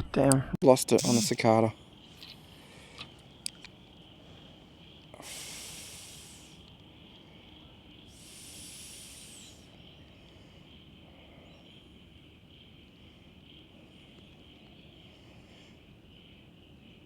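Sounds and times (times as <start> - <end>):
insects chirring: 0.6 - 17.0
short loud hiss: 0.9 - 1.4, 5.2 - 6.6.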